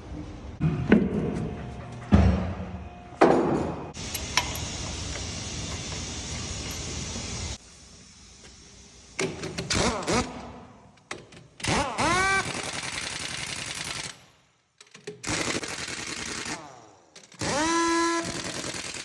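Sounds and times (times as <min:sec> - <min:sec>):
pneumatic impact wrench whining: 0:04.0 - 0:14.2, 0:15.0 - 0:19.0.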